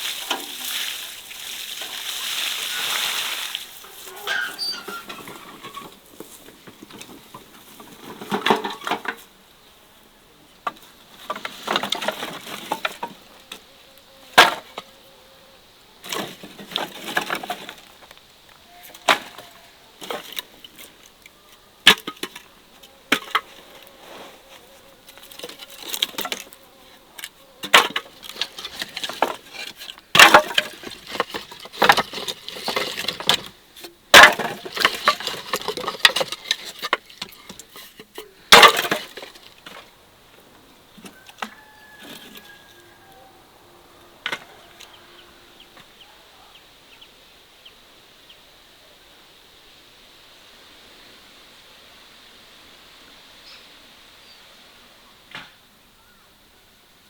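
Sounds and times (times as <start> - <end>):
rustling: 0.0 - 9.4, 10.6 - 15.1, 16.0 - 43.2.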